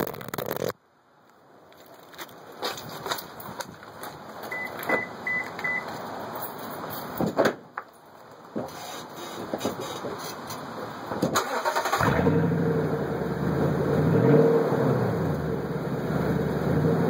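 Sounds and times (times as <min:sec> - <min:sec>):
rustling and clicks: 0:00.0 - 0:00.8
electronic warning beeps: 0:04.5 - 0:05.9.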